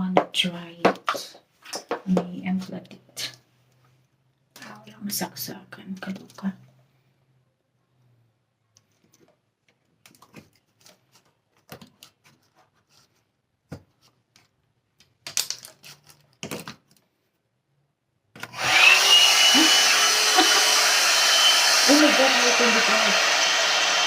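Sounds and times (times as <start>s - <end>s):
hair dryer brush blowing: 18.5s - 24.0s.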